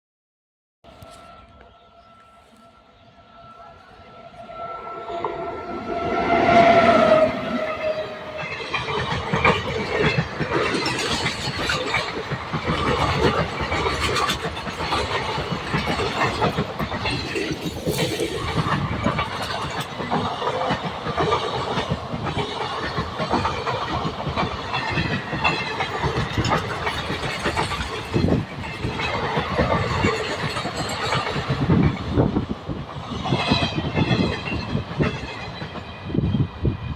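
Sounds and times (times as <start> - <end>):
train wheels rattling: 3.8 - 36.9
clacks over rail joints: 7.9 - 36.0.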